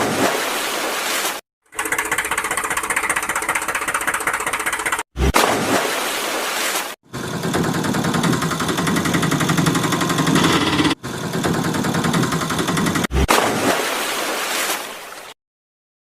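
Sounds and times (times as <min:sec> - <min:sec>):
motor running with rattling pulse: 0:01.7 - 0:05.0, 0:07.1 - 0:13.1.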